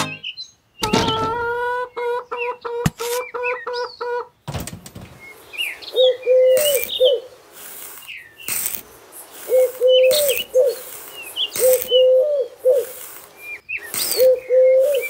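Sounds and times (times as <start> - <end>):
birds chirping: 0.0 - 4.4, 5.1 - 15.0
low cooing calls: 5.6 - 7.3, 9.4 - 13.0, 13.9 - 15.0.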